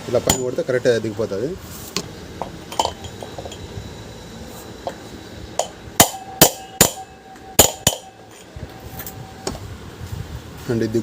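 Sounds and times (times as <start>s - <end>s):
metallic ringing tone: 0.1s - 1.4s, 2.1s - 9.7s
hammer striking metal pipe: 0.2s - 0.7s, 2.4s - 3.7s, 5.6s - 9.6s
hammer tapping: 5.6s - 8.2s.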